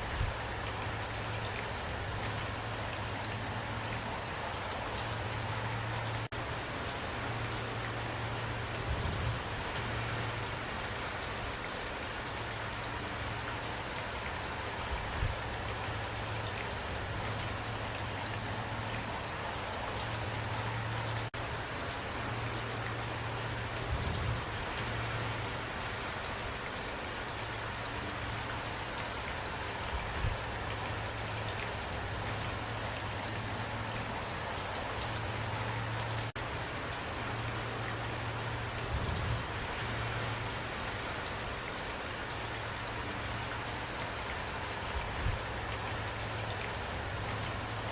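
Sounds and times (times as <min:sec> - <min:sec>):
steady rain falling: 0:00.0 - 0:47.9
sharp raindrop ticks: 0:09.7 - 0:11.0, 0:24.6 - 0:33.1.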